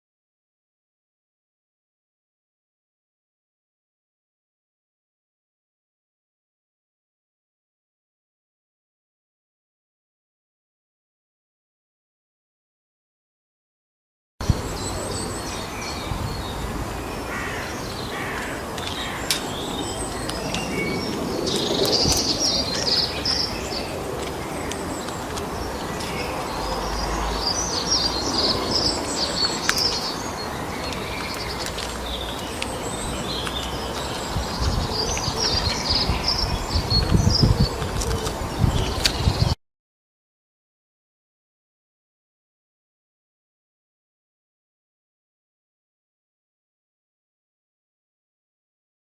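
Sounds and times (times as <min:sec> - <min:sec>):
birds chirping: 0:14.4 - 0:39.6.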